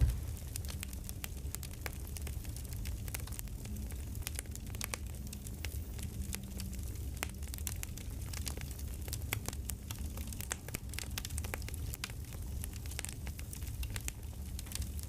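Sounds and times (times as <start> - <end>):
low steady rumble: 0.0 - 11.5
campfire pops and snaps: 0.0 - 15.0.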